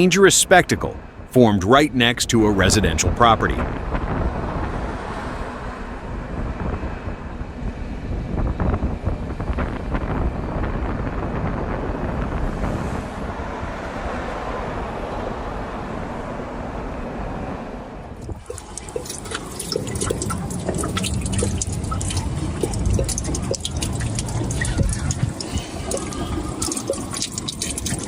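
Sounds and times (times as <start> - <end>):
water dripping and trickling: 18.2 - 28.0.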